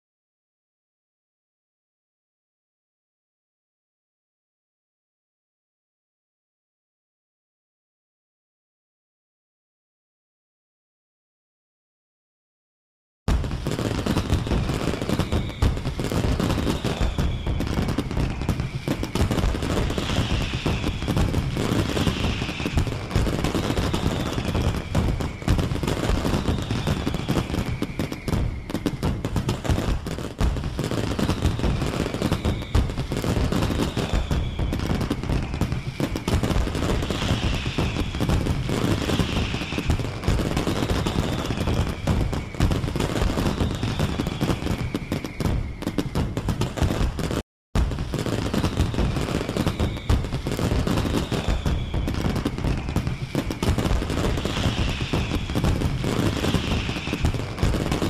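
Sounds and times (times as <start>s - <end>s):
fireworks crackling and popping: 13.3s - 58.0s
fireworks high falling whistles: 13.3s - 58.0s.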